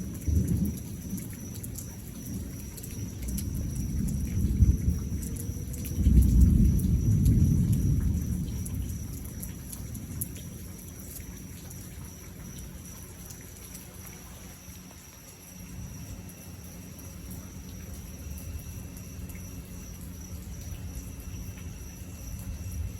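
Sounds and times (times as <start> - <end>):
thunder rumbling: 0.0 - 12.9.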